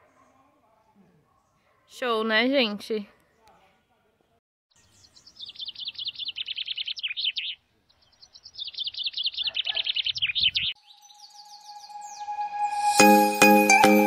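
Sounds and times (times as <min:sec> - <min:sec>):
songbird singing rapid high notes: 0:04.8 - 0:12.4
background music steady tone: 0:10.8 - 0:14.0.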